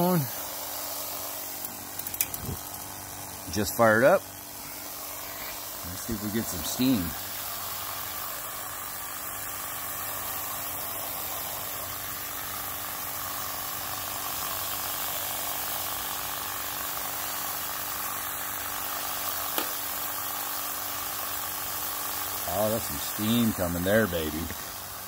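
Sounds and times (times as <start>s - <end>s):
hiss of gas flame: 19.2s - 20.3s.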